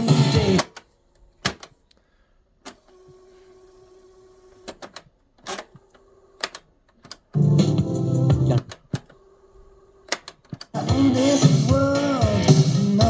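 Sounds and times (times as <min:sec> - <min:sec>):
music from boombox: 0:00.0 - 0:00.8, 0:07.4 - 0:08.7, 0:10.7 - 0:13.0.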